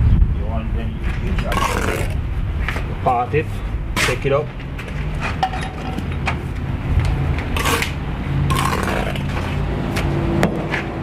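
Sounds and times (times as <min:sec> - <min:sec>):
trowel scraping mortar: 0:01.5 - 0:02.2, 0:07.6 - 0:09.6.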